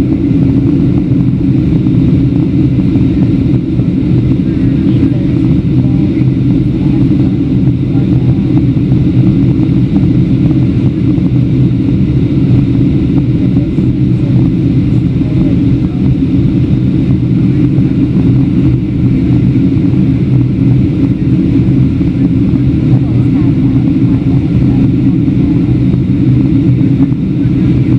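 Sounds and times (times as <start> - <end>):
airplane cabin engine drone: 0.0 - 27.9.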